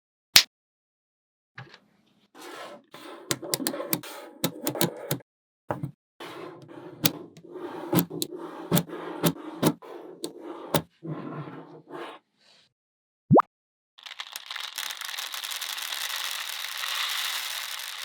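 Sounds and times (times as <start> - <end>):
magnetic balls clicking together: 14.0 - 18.0.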